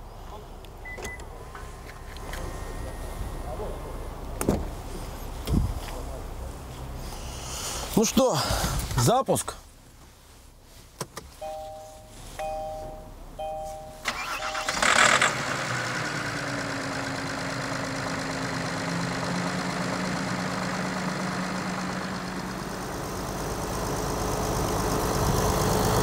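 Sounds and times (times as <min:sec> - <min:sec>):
dashboard chime beeps: 0:00.9 - 0:03.5, 0:11.4 - 0:14.9
diesel engine starting and idling: 0:12.7 - 0:26.0.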